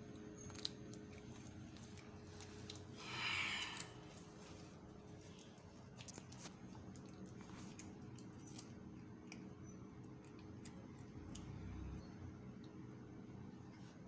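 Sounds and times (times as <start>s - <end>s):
cat chewing crunchy food: 0.0s - 3.0s, 3.7s - 11.9s
steady low hum: 0.0s - 14.0s.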